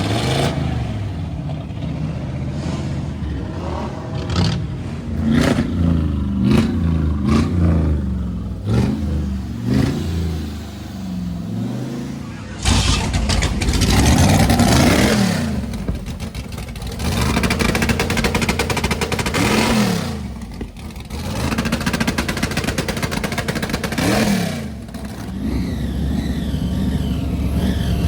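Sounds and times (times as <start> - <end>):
car engines revving: 0.0 - 28.0
wavering high whine: 11.9 - 15.0.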